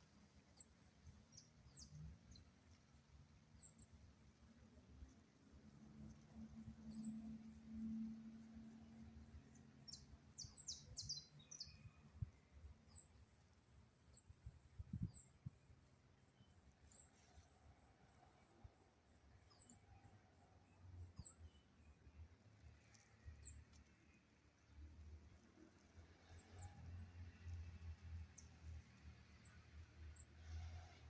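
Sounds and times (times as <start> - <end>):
faint high-pitched bird chirps: 0.5 - 2.4, 3.5 - 4.0, 6.8 - 7.6, 9.5 - 13.2, 14.0 - 22.2, 22.8 - 24.2, 26.2 - 27.6.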